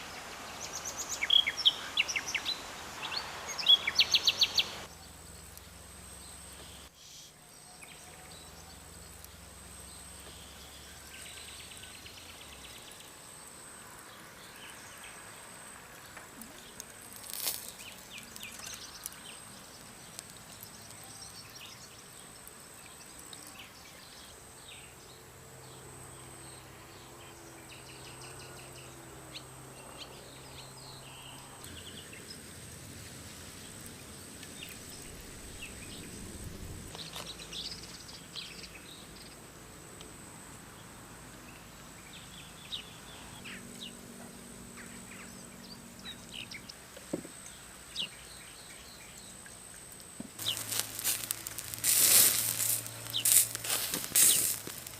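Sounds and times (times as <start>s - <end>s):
bird chirps: 0.0s - 5.6s, 50.4s - 54.9s.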